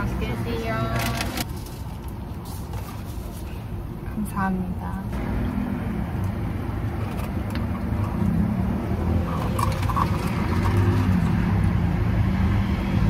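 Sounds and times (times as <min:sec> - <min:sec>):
motor vehicle rumbling: 0:00.0 - 0:13.0.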